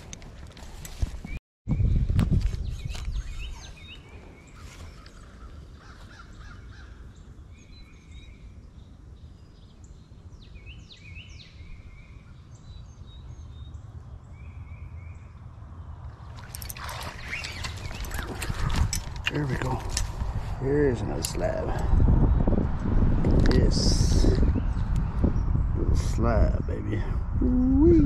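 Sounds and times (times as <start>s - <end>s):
microphone handling rustle: 0.0s - 5.3s, 16.4s - 22.4s
wind rumble on microphone: 0.0s - 28.0s
birds calling: 2.6s - 22.6s.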